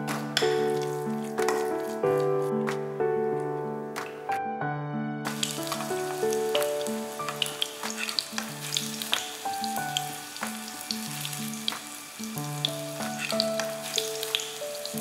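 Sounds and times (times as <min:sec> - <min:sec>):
background music with held notes: 0:00.0 - 0:15.0
patties sizzling in oil: 0:00.4 - 0:02.3, 0:05.3 - 0:15.0.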